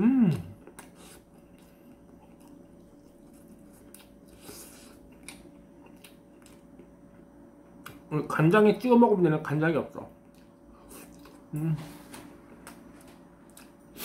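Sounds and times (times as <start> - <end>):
person chewing and biting: 0.3 - 6.9.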